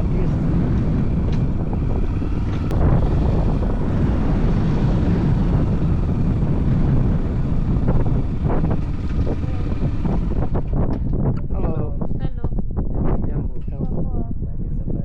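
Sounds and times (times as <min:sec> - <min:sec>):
motorcycle engine rumble: 0:00.0 - 0:12.5.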